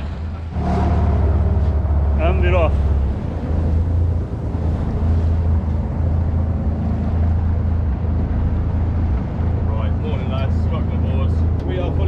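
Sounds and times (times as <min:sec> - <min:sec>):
boat engine drone: 0:00.0 - 0:12.0.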